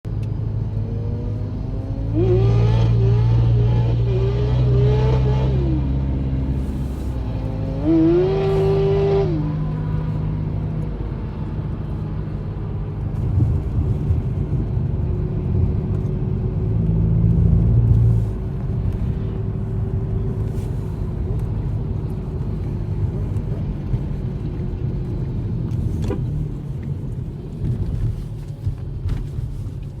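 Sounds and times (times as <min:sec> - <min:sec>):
motorcycle engine revving: 0:01.8 - 0:09.9.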